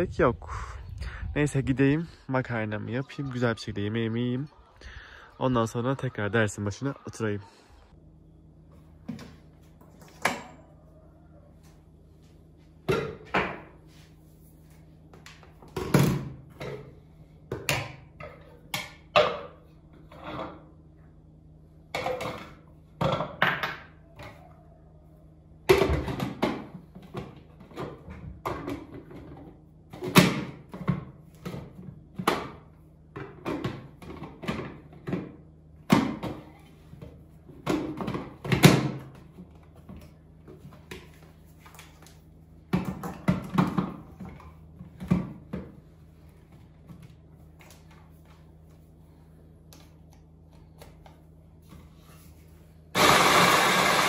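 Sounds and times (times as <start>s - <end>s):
steady low hum: 0.0s - 23.4s.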